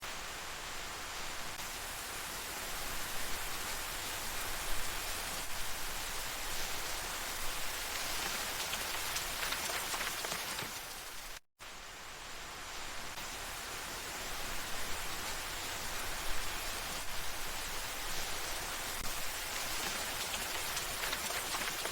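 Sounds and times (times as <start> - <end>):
rain falling: 0.1 - 11.4, 12.0 - 21.9
raindrops ticking on a surface: 6.4 - 11.4, 19.0 - 21.9.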